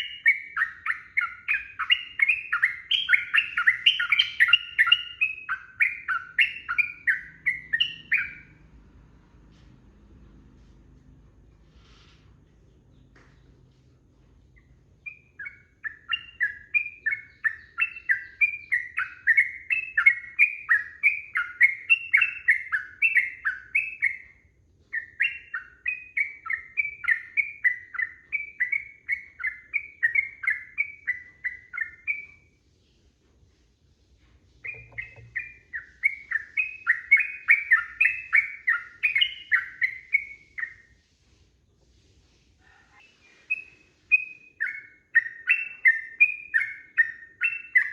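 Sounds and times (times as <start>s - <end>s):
bird singing bubbling chatter: 34.6s - 40.9s.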